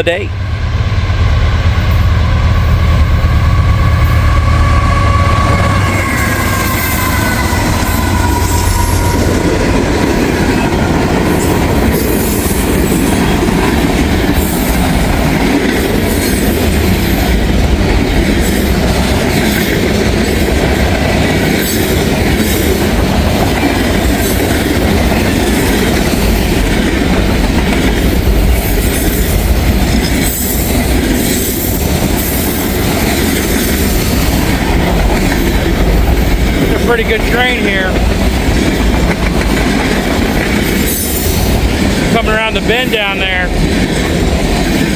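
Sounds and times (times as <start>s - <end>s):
freight train cars rolling: 0.0s - 44.9s
train wheel squeal: 1.9s - 9.5s.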